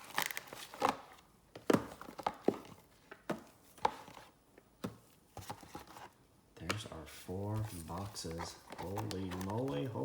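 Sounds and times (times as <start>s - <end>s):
cardboard boxes knocking and thumping: 1.5s - 6.1s.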